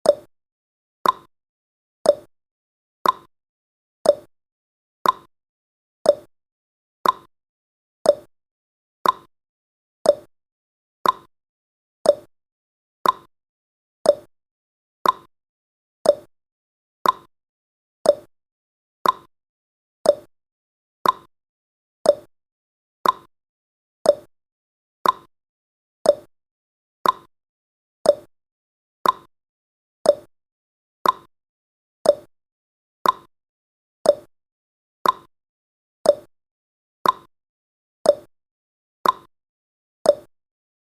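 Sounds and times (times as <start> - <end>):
timer ticking: 0.0 - 0.3, 1.0 - 1.3, 2.0 - 2.3, 3.0 - 3.3, 4.0 - 4.3, 5.0 - 5.3, 6.0 - 6.3, 7.0 - 7.3, 8.0 - 8.3, 9.0 - 9.3, 10.0 - 10.3, 11.0 - 11.3, 12.0 - 12.3, 13.0 - 13.3, 14.0 - 14.3, 15.0 - 15.3, 16.0 - 16.3, 17.0 - 17.3, 18.0 - 18.3, 19.0 - 19.3, 20.0 - 20.3, 21.0 - 21.3, 22.0 - 22.3, 23.0 - 23.3, 24.0 - 24.3, 25.0 - 25.3, 26.0 - 26.3, 27.0 - 27.3, 28.0 - 28.3, 29.0 - 29.3, 30.0 - 30.3, 31.0 - 31.3, 32.0 - 32.3, 33.0 - 33.3, 34.0 - 34.3, 35.0 - 35.3, 36.0 - 36.3, 37.0 - 37.3, 38.1 - 38.3, 39.0 - 39.3, 40.1 - 40.3.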